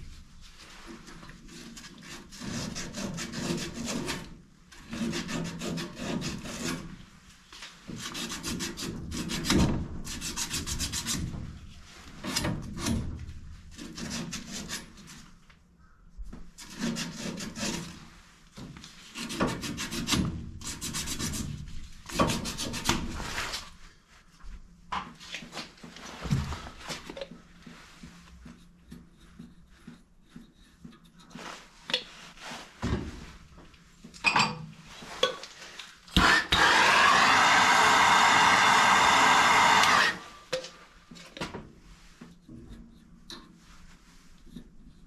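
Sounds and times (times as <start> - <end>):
rasping rubbing strokes: 0.7 - 6.9.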